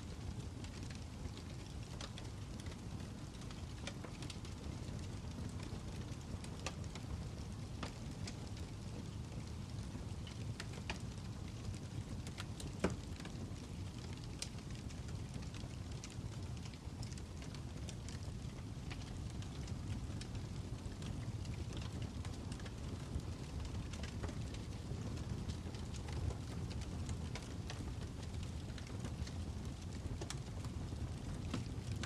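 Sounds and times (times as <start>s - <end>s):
fire crackling: 0.1s - 32.0s
fire popping and snapping: 0.1s - 32.0s
flames rumbling: 0.1s - 32.0s.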